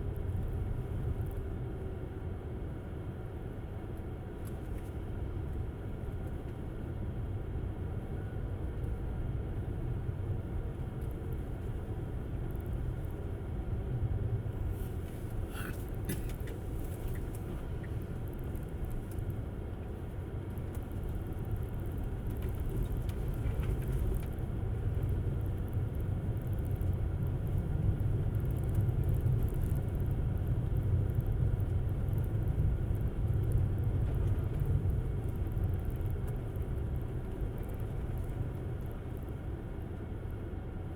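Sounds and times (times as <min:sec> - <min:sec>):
road and tyre rumble: 0:00.0 - 0:40.9.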